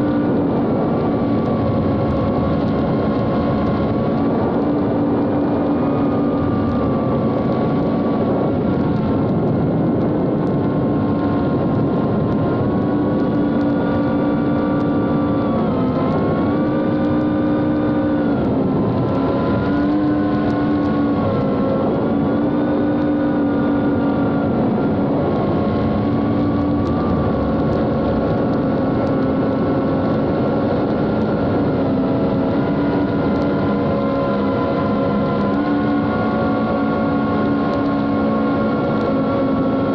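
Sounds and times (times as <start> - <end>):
drone motors whining: 11.7 - 39.9.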